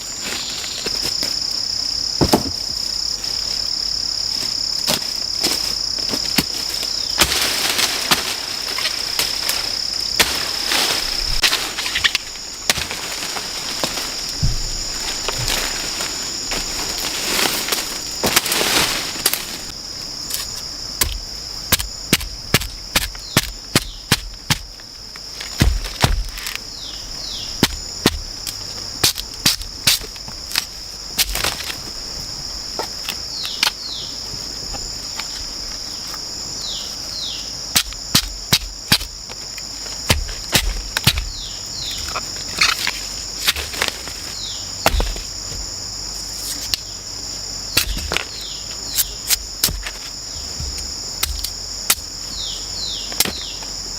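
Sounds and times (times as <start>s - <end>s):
high-pitched insect drone: 0.0s - 53.9s
sharp knocks and clicks: 50.6s - 52.1s.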